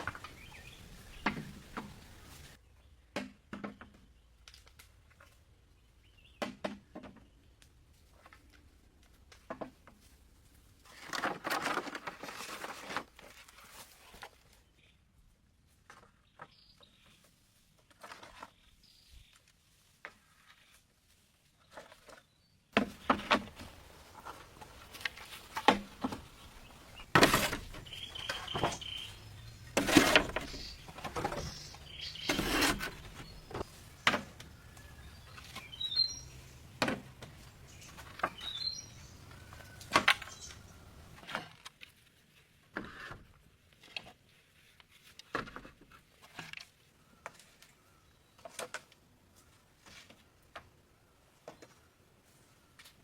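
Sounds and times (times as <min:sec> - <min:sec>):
short bird chirps: 0:27.8 - 0:29.5.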